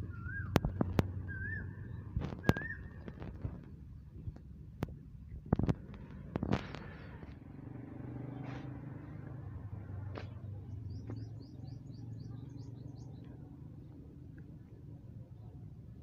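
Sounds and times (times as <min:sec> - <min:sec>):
small bird chirping: 0:00.0 - 0:04.4, 0:10.3 - 0:14.0
low steady hum: 0:00.0 - 0:16.0.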